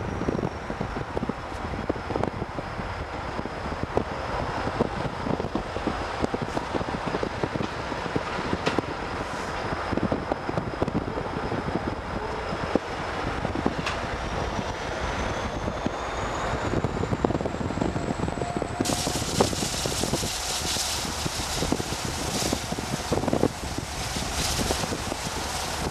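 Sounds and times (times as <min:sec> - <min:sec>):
wind on microphone: 0:00.0 - 0:25.9
train wheels clattering on rails: 0:06.2 - 0:09.8, 0:13.7 - 0:17.3
high whine rising in pitch: 0:08.9 - 0:25.9.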